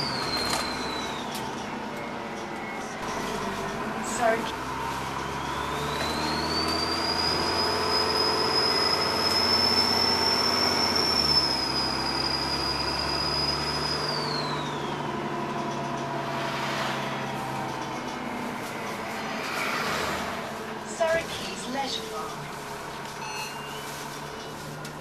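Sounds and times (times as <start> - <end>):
turbocharger whistle: 0.0 - 1.6, 5.0 - 15.2
bus diesel engine: 0.0 - 25.0.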